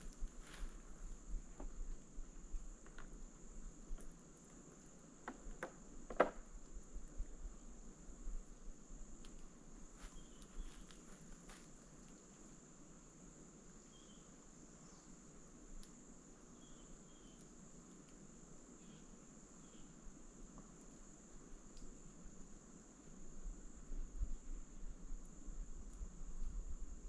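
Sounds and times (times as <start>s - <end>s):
high-pitched insect trill: 8.7s - 12.8s, 13.7s - 17.8s, 18.8s - 20.4s.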